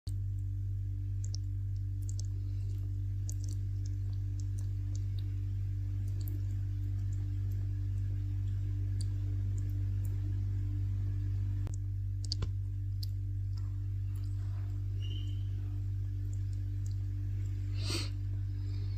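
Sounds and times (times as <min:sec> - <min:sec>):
steady low hum: 0:00.1 - 0:18.9
bat chewing fruit wet clicks: 0:01.2 - 0:10.3, 0:16.2 - 0:17.6.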